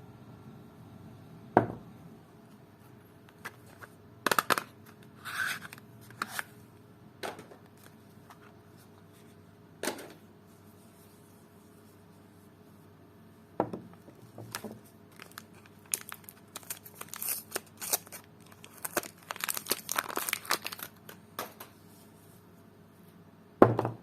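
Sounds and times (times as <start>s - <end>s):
wrapper rustling: 14.5s - 21.2s.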